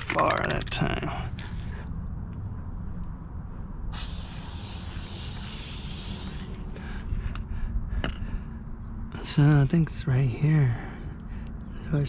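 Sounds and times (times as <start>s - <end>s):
aerosol spray hiss: 4.0s - 6.6s.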